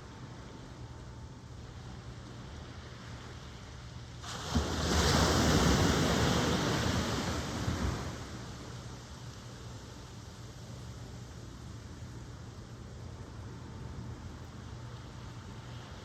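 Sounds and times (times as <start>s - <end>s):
ocean wave breaking: 4.2s - 8.6s.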